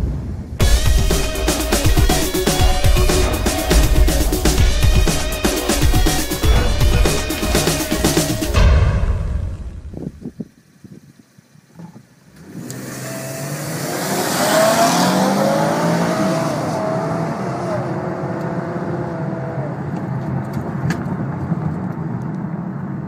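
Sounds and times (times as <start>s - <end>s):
car engine accelerating hard: 12.4s - 21.9s.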